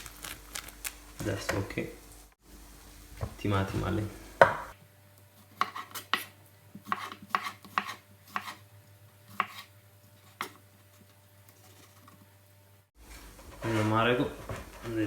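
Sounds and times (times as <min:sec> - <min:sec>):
knife chopping on cutting board: 0:04.4 - 0:04.8, 0:05.6 - 0:08.6, 0:09.3 - 0:09.7.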